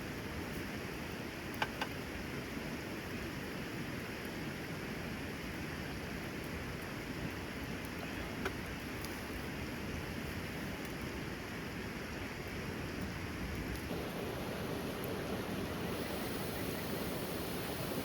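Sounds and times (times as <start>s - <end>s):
rain hissing: 13.9s - 18.0s.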